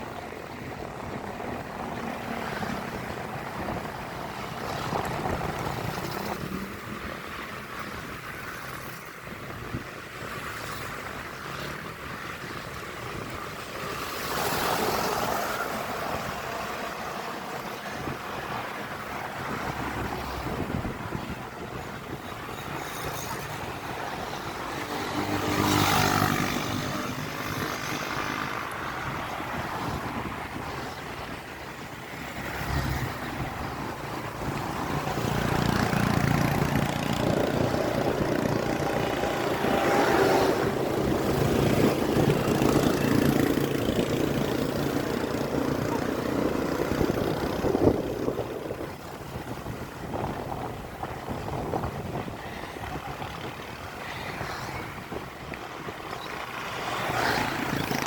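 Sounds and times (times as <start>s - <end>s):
road vehicle running: 0.0s - 58.0s
wind noise on microphone: 0.0s - 58.0s.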